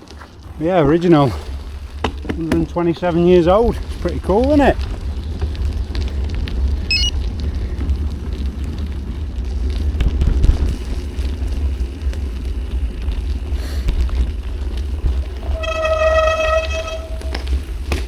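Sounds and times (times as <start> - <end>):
tyres rumbling on gravel: 0.0 - 18.0
horn-like tone: 6.9 - 7.1, 15.4 - 17.6.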